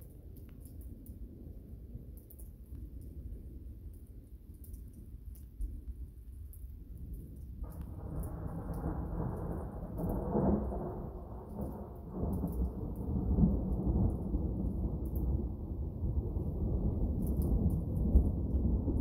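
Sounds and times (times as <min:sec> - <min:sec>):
rain: 0:00.0 - 0:19.0
thunder rumbling: 0:05.9 - 0:19.0.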